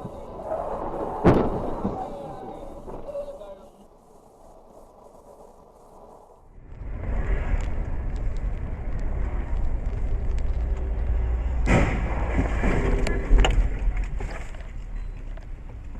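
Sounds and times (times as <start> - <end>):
rush of noise: 0.0 - 14.4
car road and engine rumble: 5.8 - 15.9.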